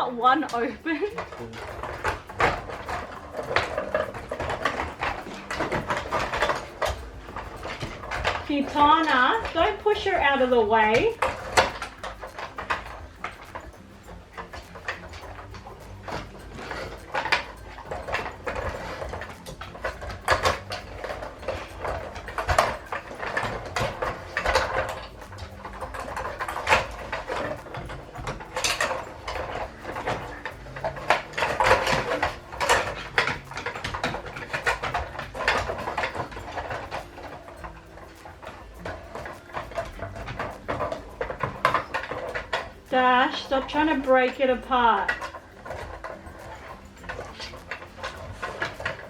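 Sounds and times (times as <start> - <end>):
puzzle pieces clattering and knocking: 1.1 - 49.0.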